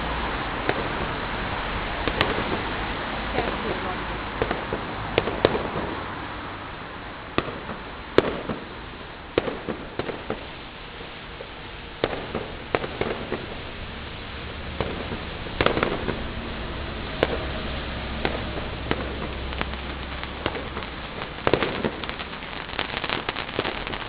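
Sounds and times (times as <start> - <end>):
fireworks bangs and crackles: 0.0 - 24.0
steady background hiss: 0.0 - 24.0.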